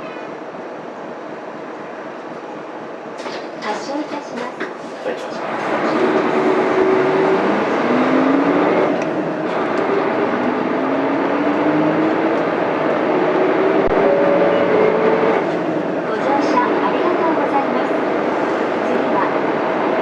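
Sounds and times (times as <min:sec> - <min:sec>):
bus diesel engine accelerating: 0:05.3 - 0:20.0.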